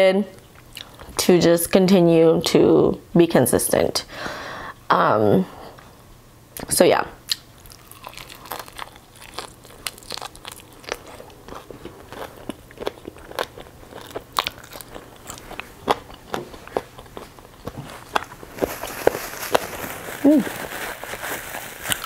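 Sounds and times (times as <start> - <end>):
crunchy chewing: 7.3 - 22.0.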